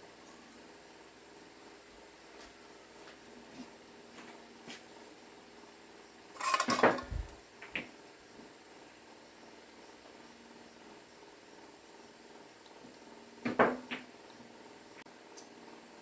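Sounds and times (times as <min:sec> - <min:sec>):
metal tools clattering: 0:06.4 - 0:07.3.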